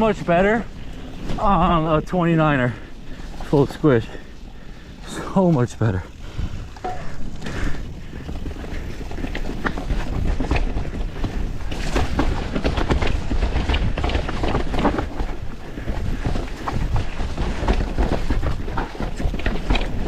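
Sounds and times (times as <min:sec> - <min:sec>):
mountain bike rattling: 0:00.0 - 0:20.0
tyres on dirt: 0:00.0 - 0:20.0
wind buffeting microphone: 0:00.0 - 0:20.0
bike clacks and knocks: 0:06.5 - 0:20.0.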